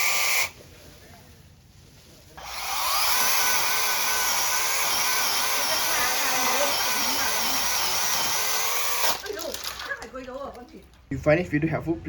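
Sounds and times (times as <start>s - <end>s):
mini chainsaw high whine: 2.4s - 9.2s.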